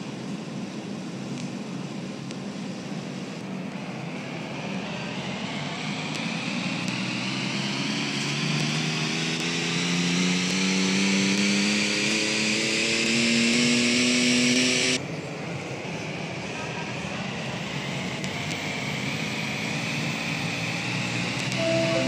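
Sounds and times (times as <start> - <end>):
rising whine: 3.0 - 15.0, 15.8 - 22.0
simulated sports car engine revving: 4.1 - 15.0, 17.2 - 22.0
metro train running noise: 15.0 - 18.2, 19.0 - 22.0.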